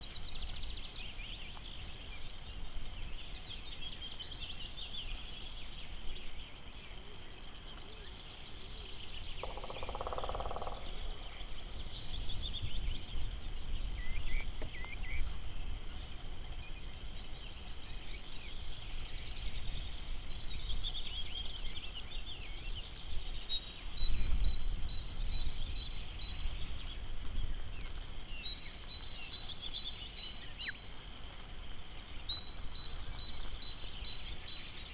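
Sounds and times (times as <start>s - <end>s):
small birds singing: 0.0s - 34.9s
woodpecker drumming: 9.2s - 11.3s.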